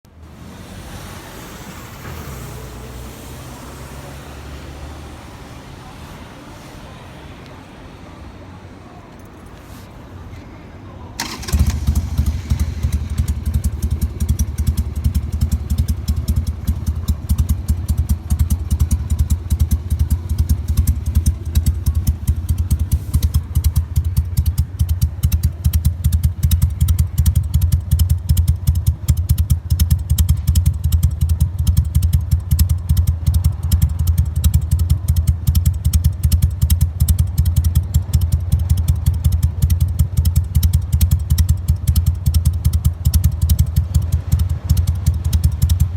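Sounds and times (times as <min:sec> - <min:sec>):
motorcycle engine idling: 0:11.2 - 0:45.9.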